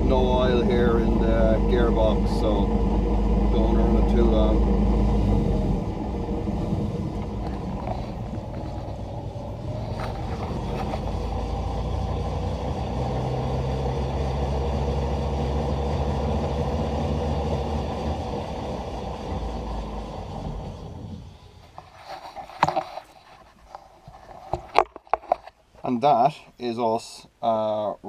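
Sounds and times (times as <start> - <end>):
electric motor running: 0.0 - 21.6
gearbox whine: 0.0 - 23.1.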